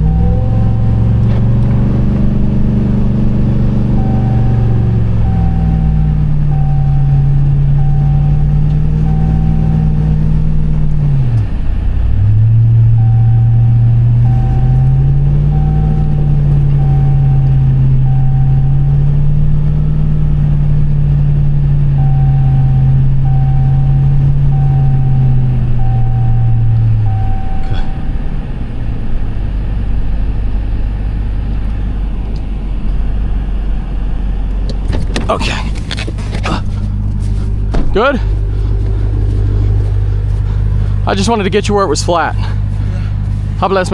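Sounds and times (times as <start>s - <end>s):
vehicle warning chime beeping: 0.0s - 11.3s, 12.6s - 20.4s, 21.3s - 28.2s, 37.5s - 43.9s
truck engine pulling under load: 0.0s - 43.9s.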